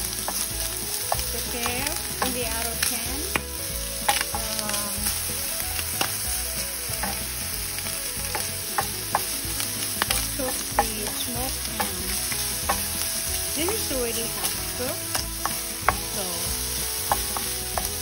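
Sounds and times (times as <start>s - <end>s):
meat sizzling in frying pan: 0.0s - 18.0s
wooden spatula clicking on pan: 0.2s - 5.0s, 7.0s - 7.3s, 8.2s - 9.4s, 10.0s - 13.0s, 17.0s - 18.0s.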